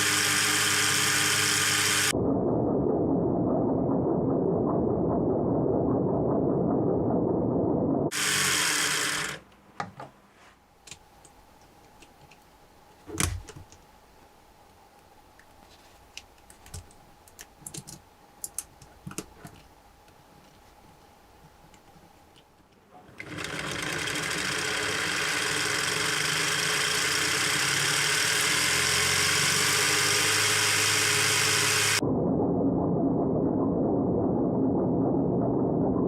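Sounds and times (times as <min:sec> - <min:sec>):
whir of plastic gears: 0:00.0 - 0:02.1, 0:08.1 - 0:09.4, 0:23.1 - 0:32.0.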